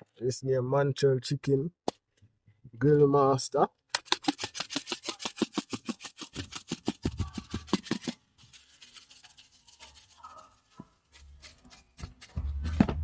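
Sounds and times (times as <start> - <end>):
seasoning shaker rattling: 4.0 - 10.5.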